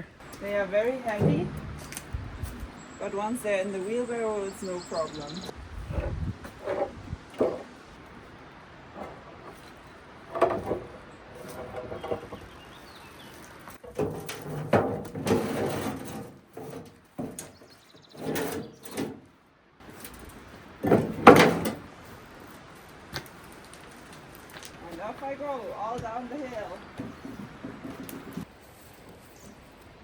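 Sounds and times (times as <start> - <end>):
slate slabs scraping and knocking: 5.8 - 8.3, 8.9 - 19.2, 19.8 - 28.5.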